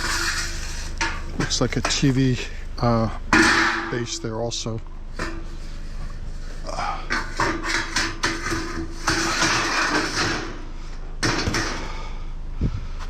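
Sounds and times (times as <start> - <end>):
scrap metal knocks and clanks: 0.0 - 2.4, 3.3 - 4.2, 5.1 - 6.2, 7.1 - 12.0
rough scraping: 0.0 - 2.8, 5.1 - 10.6.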